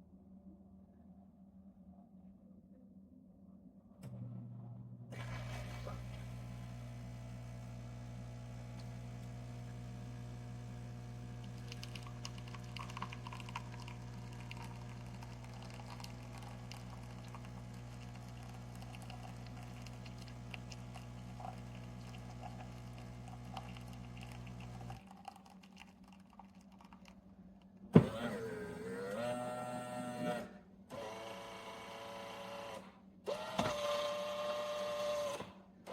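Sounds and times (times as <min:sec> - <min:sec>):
motor starting up: 0:05.1 - 0:25.0, 0:28.0 - 0:35.5
espresso machine humming: 0:05.1 - 0:25.5, 0:28.0 - 0:35.9.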